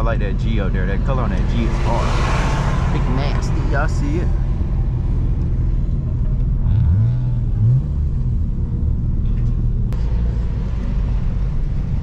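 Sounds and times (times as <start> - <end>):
engine revving: 0.0 - 5.5, 6.4 - 9.0
car engines idling: 0.0 - 12.0.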